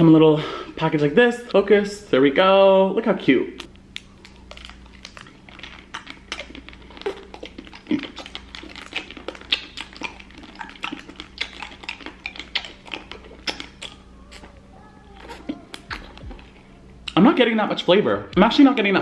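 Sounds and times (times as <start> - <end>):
person chewing crunchy snack: 3.9 - 17.2.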